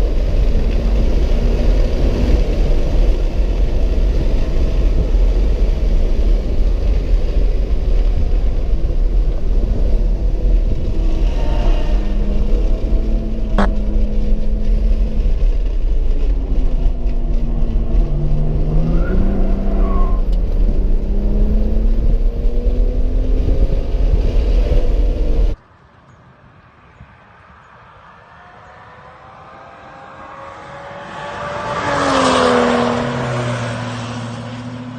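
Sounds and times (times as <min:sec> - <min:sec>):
car engine running hard: 0:00.0 - 0:25.6
wind and road rumble: 0:00.0 - 0:34.9.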